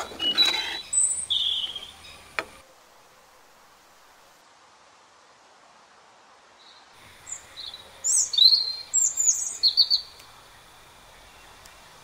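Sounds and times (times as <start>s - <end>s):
small bird chirping: 0.0s - 2.6s, 6.6s - 10.3s
faint steady hiss: 0.0s - 12.0s.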